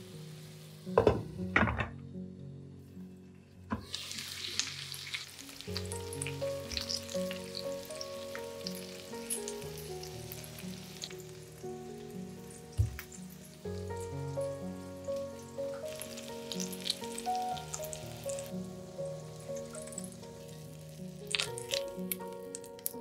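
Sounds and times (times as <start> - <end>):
vegetables sizzling in oil: 0.0 - 1.4, 3.8 - 23.0
glass lid knocking on pan: 1.0 - 1.9
spatula in frying pan: 3.8 - 7.6.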